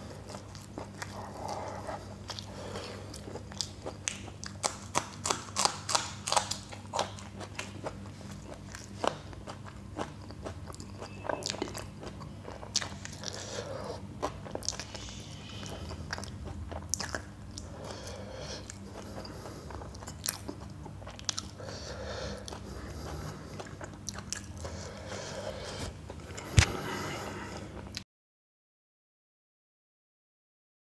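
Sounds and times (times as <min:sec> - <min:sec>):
crunching chilli: 0:00.1 - 0:18.0.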